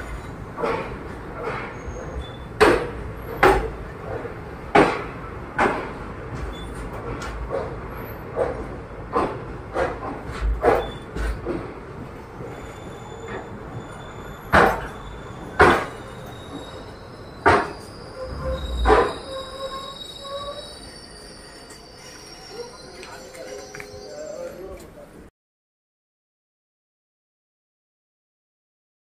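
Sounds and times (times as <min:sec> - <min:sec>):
heavy clunks of train wheels: 0:00.0 - 0:12.6, 0:13.3 - 0:19.3
thin wheel squeal: 0:01.8 - 0:02.5, 0:12.5 - 0:24.8.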